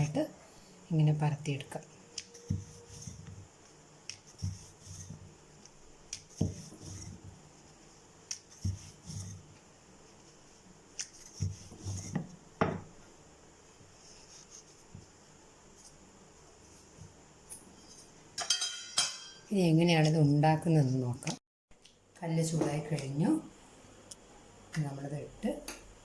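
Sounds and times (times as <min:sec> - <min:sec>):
rolling pin rolling dough: 0:01.2 - 0:13.2.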